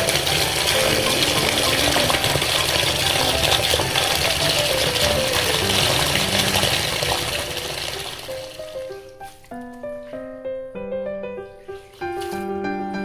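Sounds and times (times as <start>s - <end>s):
water running from a tap: 0.0s - 9.4s
simple melody background music: 0.0s - 13.0s.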